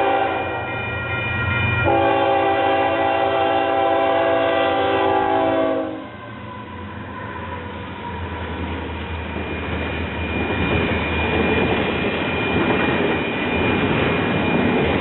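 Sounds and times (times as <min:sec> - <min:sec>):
locomotive air horn: 0:00.0 - 0:00.6, 0:01.8 - 0:06.3
train rumbling past: 0:00.0 - 0:15.0.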